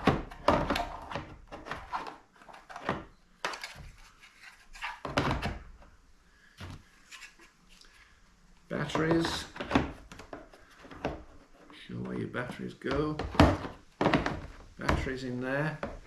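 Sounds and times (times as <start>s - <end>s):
parts knocking in plastic case: 0.0s - 1.8s, 12.9s - 16.0s.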